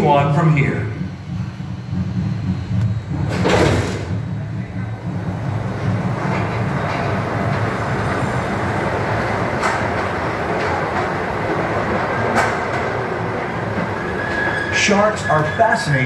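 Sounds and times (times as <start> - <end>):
miniature train rolling on track: 3.2 - 16.0.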